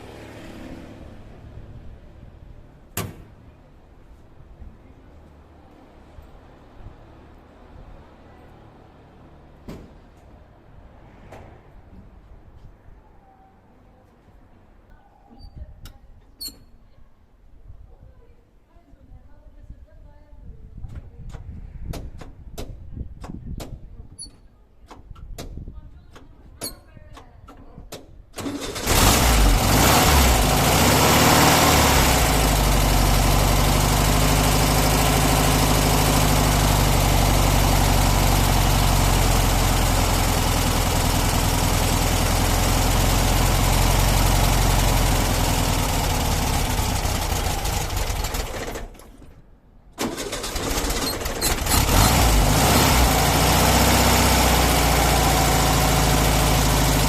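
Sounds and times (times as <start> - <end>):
air-cooled engine running: 28.4 - 49.0, 50.0 - 57.0.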